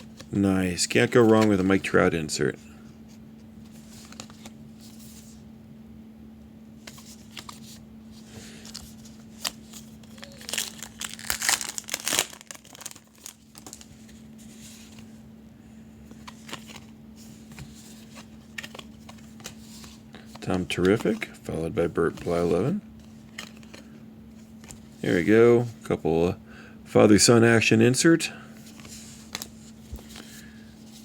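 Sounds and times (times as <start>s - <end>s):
cards clicking and rustling: 0.0s - 2.2s, 3.6s - 5.4s, 6.8s - 15.1s, 16.1s - 24.0s, 28.6s - 31.0s
wrapper crinkling and tearing: 8.8s - 14.0s.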